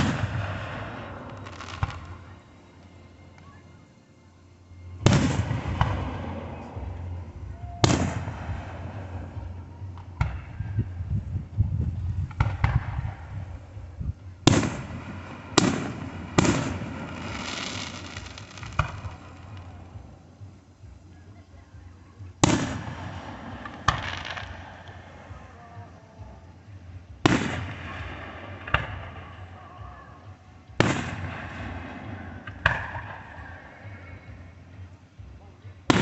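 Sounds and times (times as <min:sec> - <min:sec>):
firework bangs: 0:00.0 - 0:02.2, 0:05.0 - 0:11.1, 0:12.2 - 0:13.8, 0:14.4 - 0:20.1, 0:22.4 - 0:25.2, 0:27.2 - 0:29.5, 0:30.8 - 0:33.7
firework crackle: 0:00.0 - 0:03.5, 0:05.0 - 0:21.1, 0:21.9 - 0:30.2, 0:30.8 - 0:33.7.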